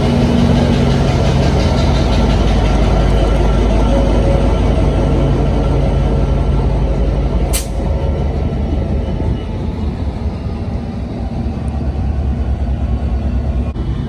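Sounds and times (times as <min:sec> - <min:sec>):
diesel train rumbling: 0:00.0 - 0:14.0
sharp hiss of air: 0:07.5 - 0:07.8.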